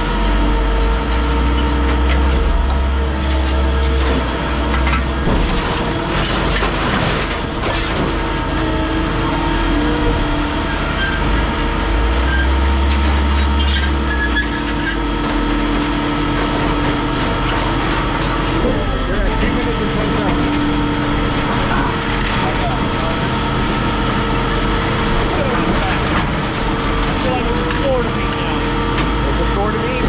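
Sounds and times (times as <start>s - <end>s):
heavy machine hum: 0.0s - 30.0s
short metal squeals: 3.1s - 7.4s, 13.5s - 15.0s.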